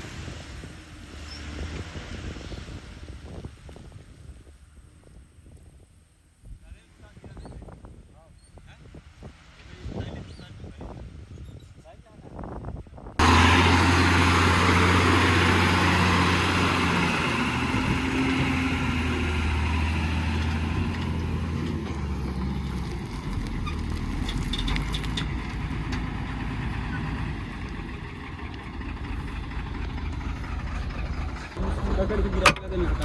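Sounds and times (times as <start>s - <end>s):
diesel engine humming: 13.2s - 33.0s.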